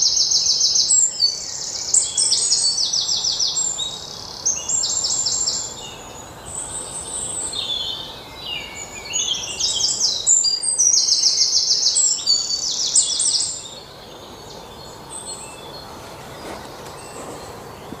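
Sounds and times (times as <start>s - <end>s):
songbirds trilling: 0.0s - 18.0s
steady background hiss: 0.0s - 18.0s.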